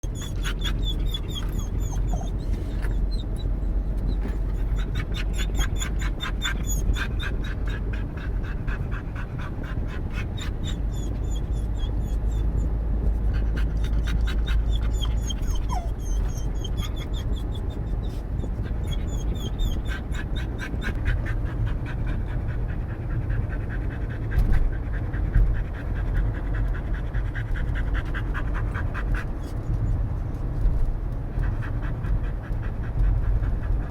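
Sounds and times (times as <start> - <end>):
dog whining: 0.0 - 22.6, 27.3 - 30.1
dog panting fast: 0.0 - 30.6, 31.2 - 33.9
moving car rumble: 0.0 - 33.9.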